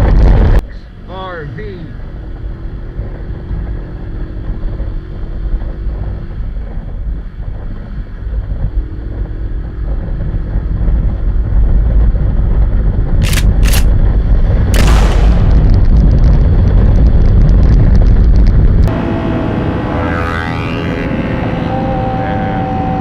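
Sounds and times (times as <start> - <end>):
wind noise: 0.0 - 1.0, 2.0 - 20.0
vehicle engine rumble: 0.0 - 23.0
sharp pops: 14.7 - 16.4
loud bang: 14.7 - 17.4.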